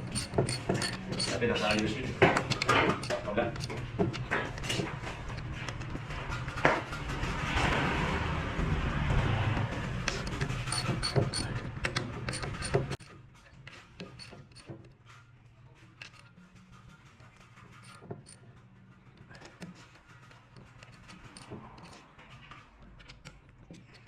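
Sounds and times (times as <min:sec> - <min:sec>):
metallic clicks of tools: 0:00.0 - 0:06.0, 0:10.1 - 0:14.9, 0:16.0 - 0:16.4, 0:20.6 - 0:24.0.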